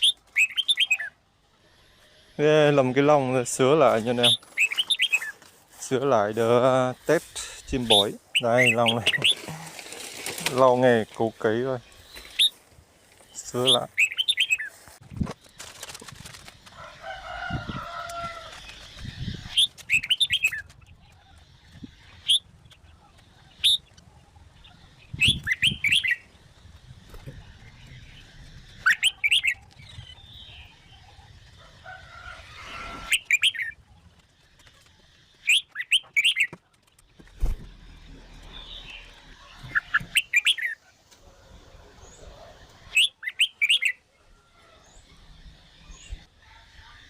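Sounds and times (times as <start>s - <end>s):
rustling: 3.8s - 8.0s, 9.0s - 13.6s, 14.5s - 17.3s
bird singing whistled notes: 25.0s - 26.3s, 39.7s - 40.8s.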